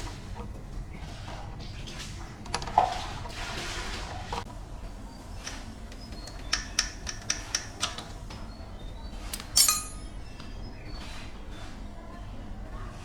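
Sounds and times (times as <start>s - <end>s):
metal parts clinking: 9.3s - 10.2s
loud ringing metal clank: 9.4s - 10.2s.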